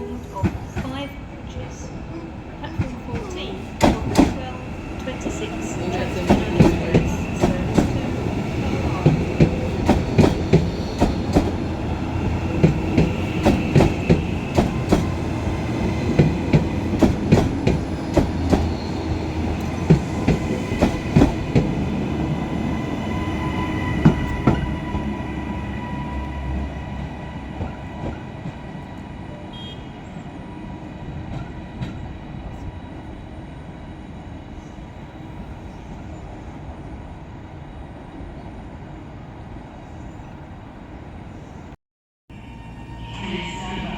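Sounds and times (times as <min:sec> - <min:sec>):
low train rumble: 0:00.0 - 0:43.9
train wheels clicking over rail joints: 0:02.7 - 0:11.6, 0:12.4 - 0:15.2, 0:16.1 - 0:21.8.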